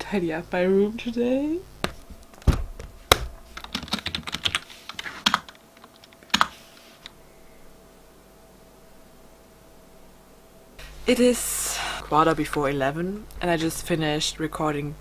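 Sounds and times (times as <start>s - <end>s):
typing on computer keyboard: 3.6s - 6.5s.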